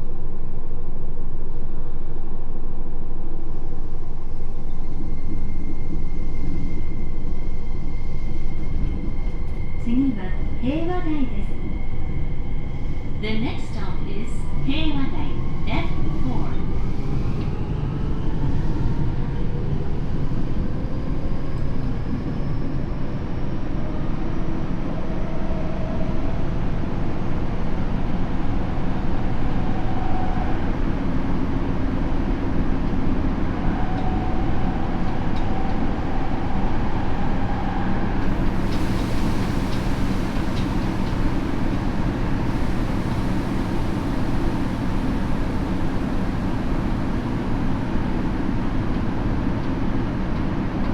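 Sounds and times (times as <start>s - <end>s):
hiss: 38.2s - 46.8s.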